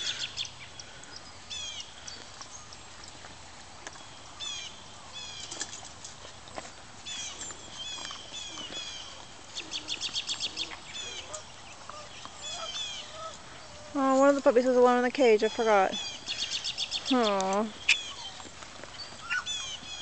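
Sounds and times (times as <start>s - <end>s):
songbirds chirping: 0.0s - 20.0s
bird trill: 7.1s - 13.8s, 15.4s - 20.0s.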